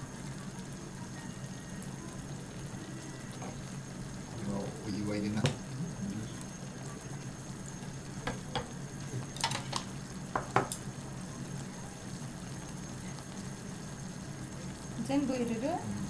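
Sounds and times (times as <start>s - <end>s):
hot pot hissing and humming: 0.0s - 16.0s
utensils knocking against pot: 8.2s - 10.8s.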